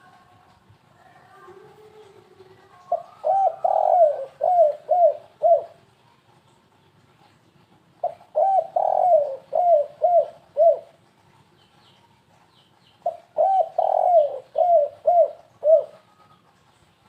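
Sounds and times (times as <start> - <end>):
dove cooing: 1.3 - 5.8, 8.0 - 11.0, 13.0 - 16.6.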